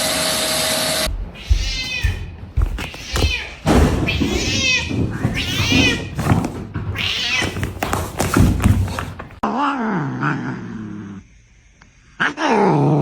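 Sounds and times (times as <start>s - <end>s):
knocks and thuds: 1.1s - 9.4s
cats yowling and meowing: 1.4s - 6.3s, 6.9s - 7.8s.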